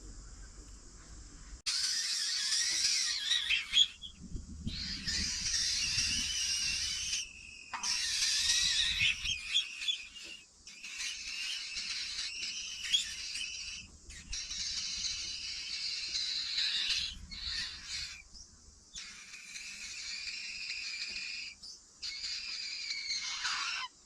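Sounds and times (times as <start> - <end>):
high-pitched animal chorus: 1.7 - 18.2, 19.0 - 24.0.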